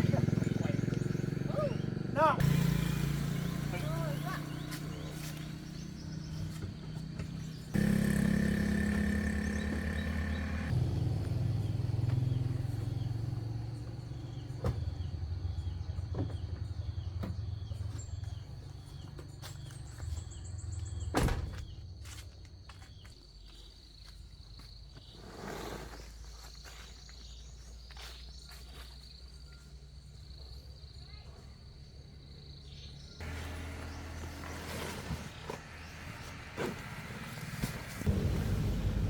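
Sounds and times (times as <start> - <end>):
vehicle engine rumbling: 0.0 - 21.2, 32.6 - 39.0.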